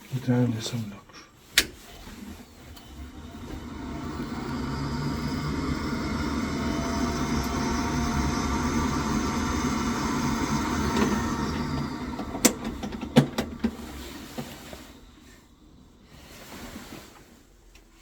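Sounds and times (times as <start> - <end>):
boiler mechanical whirr: 1.6 - 17.2.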